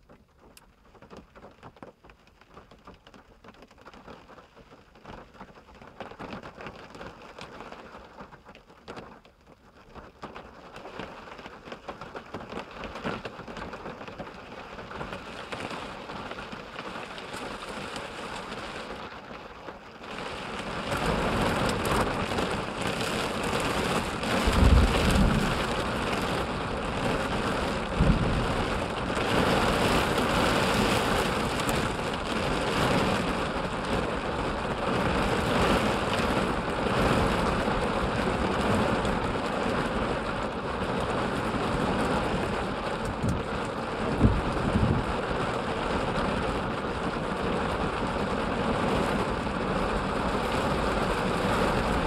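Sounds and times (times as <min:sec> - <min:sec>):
rain on a car roof: 0:00.0 - 0:52.0
low thumps: 0:28.0 - 0:28.7.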